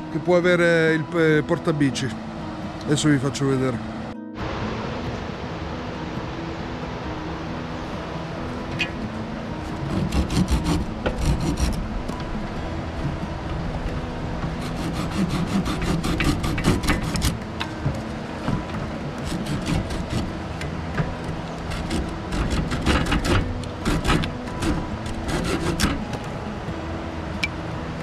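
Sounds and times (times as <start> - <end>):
objects scraping and rubbing: 9.6 - 26.6.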